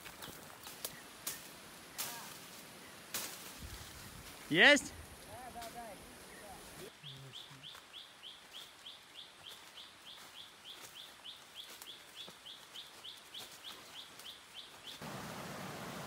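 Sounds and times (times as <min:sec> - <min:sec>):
stream water flowing: 0:15.0 - 0:16.0.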